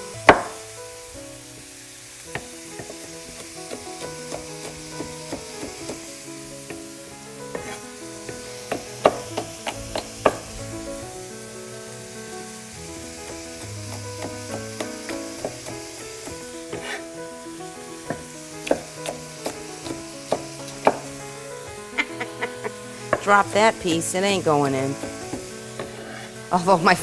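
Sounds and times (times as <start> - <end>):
vegetables sizzling in oil: 0.0 - 27.0
knife chopping on wooden board: 0.3 - 0.6, 2.4 - 6.1, 7.5 - 10.5, 13.3 - 17.0, 18.1 - 21.1, 25.0 - 25.9.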